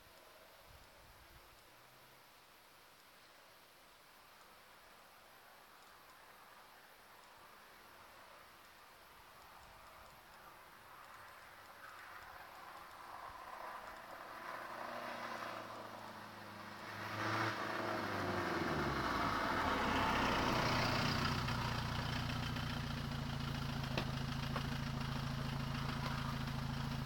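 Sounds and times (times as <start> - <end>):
diesel engine idling: 18.7 - 27.0.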